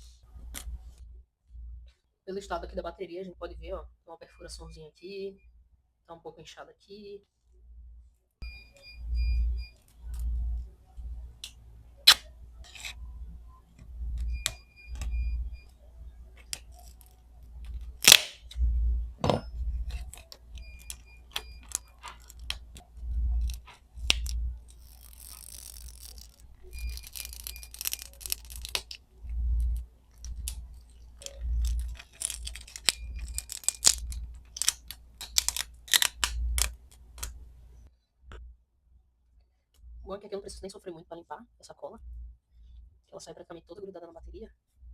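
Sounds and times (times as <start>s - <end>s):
adhesive crackling and tearing: 16.4s - 18.6s, 19.9s - 37.4s.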